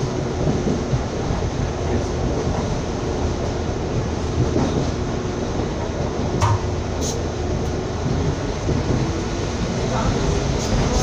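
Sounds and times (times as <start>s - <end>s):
train wheels rumbling on track: 0.0s - 11.0s
sharp knock: 6.4s - 6.8s
brief high hiss: 7.0s - 7.3s.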